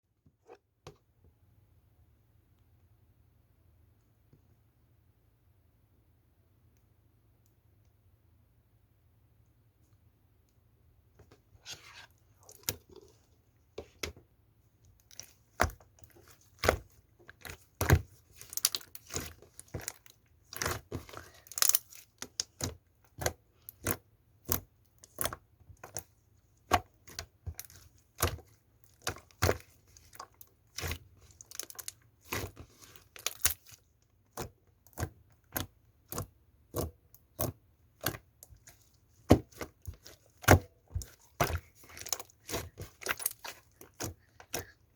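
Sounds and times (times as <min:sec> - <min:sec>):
slime popping and crackling: 0:15.1 - 0:26.1, 0:26.7 - 0:44.7.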